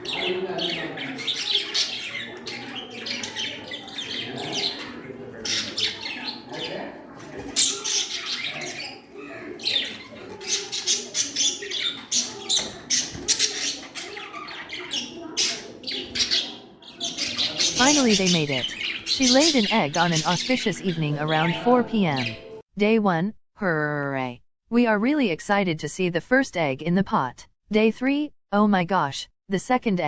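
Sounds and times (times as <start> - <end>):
budgerigars chattering: 0.0 - 22.6.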